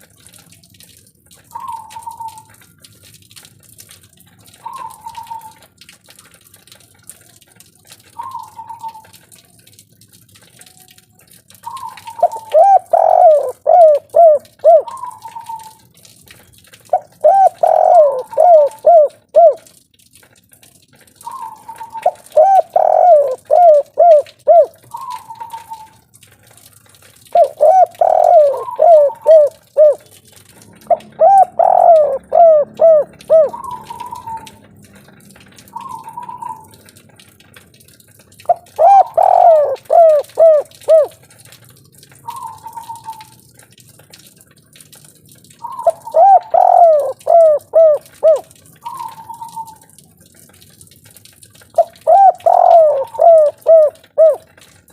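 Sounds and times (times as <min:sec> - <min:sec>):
dove cooing: 0:04.6 - 0:05.6, 0:08.2 - 0:09.1, 0:11.6 - 0:15.8, 0:16.9 - 0:19.7, 0:21.3 - 0:26.0, 0:27.3 - 0:34.6, 0:35.7 - 0:36.7, 0:38.5 - 0:41.2, 0:42.3 - 0:43.4, 0:45.6 - 0:49.8, 0:51.8 - 0:54.6.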